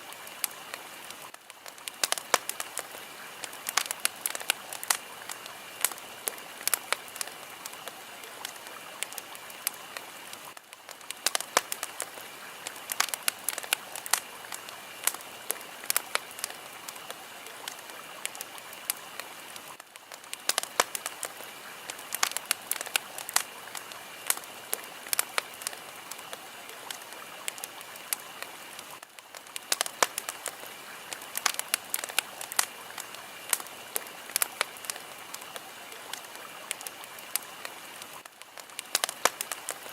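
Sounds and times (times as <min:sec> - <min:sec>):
fire crackling: 0:00.0 - 0:39.9.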